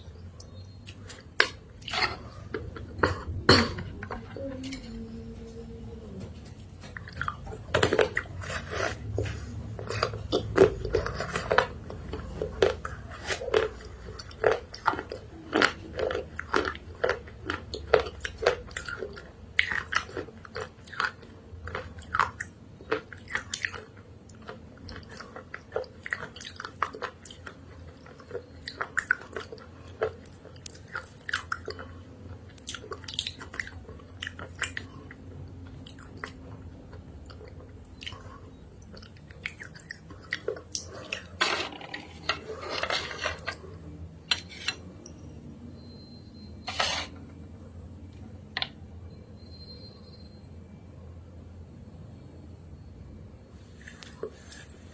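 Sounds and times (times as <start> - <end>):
crunchy chewing: 6.4 - 45.0.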